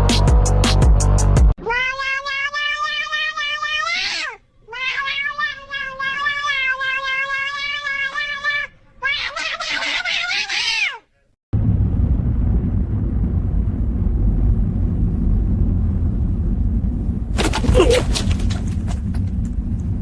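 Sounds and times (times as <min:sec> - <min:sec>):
cat meowing: 0:01.6 - 0:11.0, 0:17.4 - 0:19.3
steady low rumble: 0:11.6 - 0:20.0.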